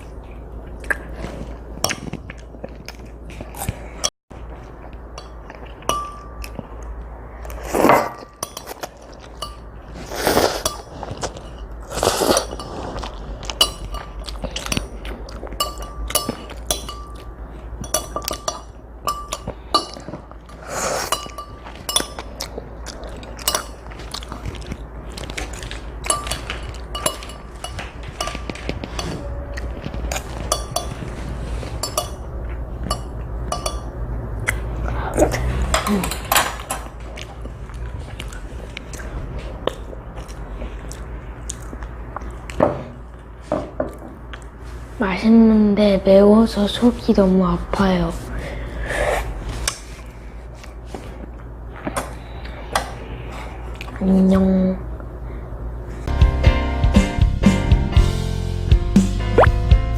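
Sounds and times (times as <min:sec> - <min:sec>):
utensils clinking against a bowl: 0:05.1 - 0:06.6, 0:07.8 - 0:34.0.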